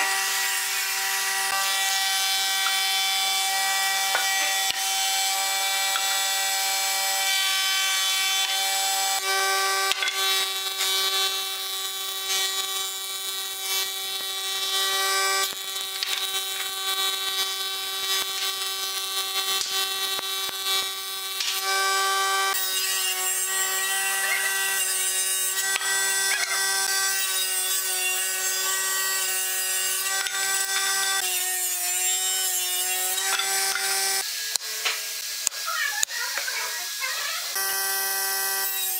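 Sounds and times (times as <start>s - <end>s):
boards being planed: 0.0s - 11.3s, 19.6s - 35.6s
thickness planer whining: 0.0s - 16.8s, 19.6s - 38.9s.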